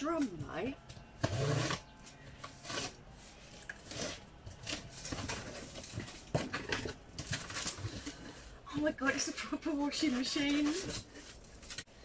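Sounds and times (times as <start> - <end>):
packaging rustling: 3.5 - 8.6.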